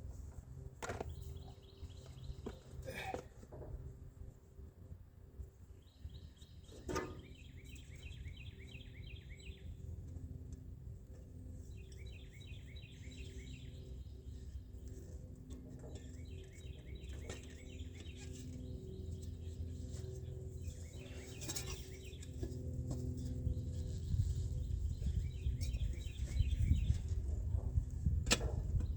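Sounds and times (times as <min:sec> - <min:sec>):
steady low rumble: 0:22.2 - 0:28.9.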